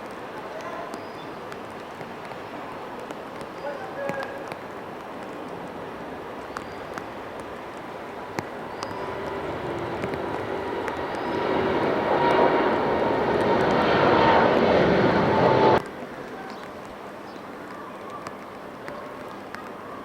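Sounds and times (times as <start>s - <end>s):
outdoor background noise: 0.0s - 20.0s
jet engines of departing airplane: 3.9s - 15.9s.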